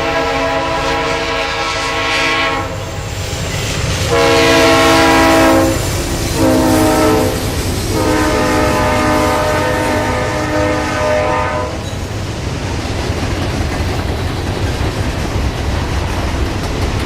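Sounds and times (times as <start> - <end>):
locomotive air horn blasts: 0.0 - 3.0, 4.1 - 11.9
train rumbling by: 0.0 - 17.0.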